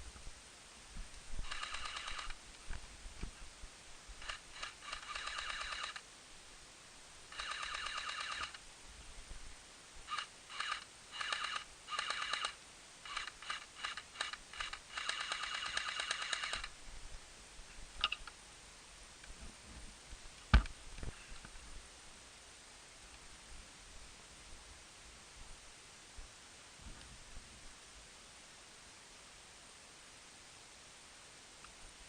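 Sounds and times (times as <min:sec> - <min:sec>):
airsoft guns firing bursts: 0:01.4 - 0:02.4, 0:04.2 - 0:06.0, 0:07.3 - 0:08.6, 0:10.1 - 0:16.7.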